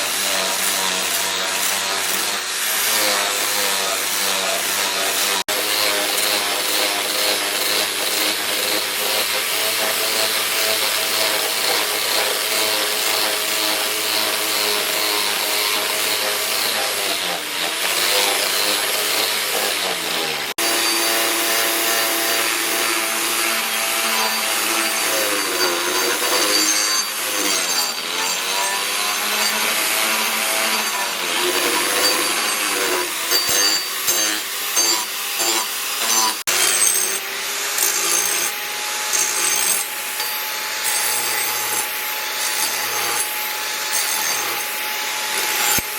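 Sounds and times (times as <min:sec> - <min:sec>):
power tool cutting wood: 0:00.0 - 0:45.9.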